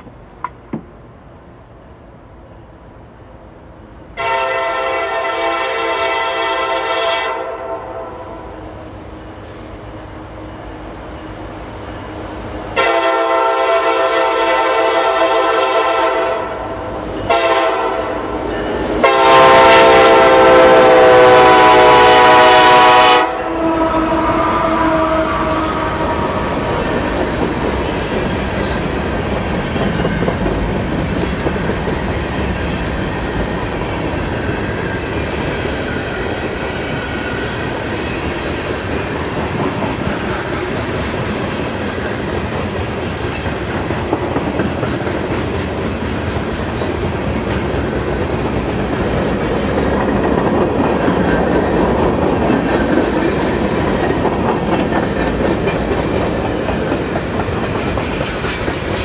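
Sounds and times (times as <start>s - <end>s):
train wheels clattering over rails: 23.8s - 59.0s.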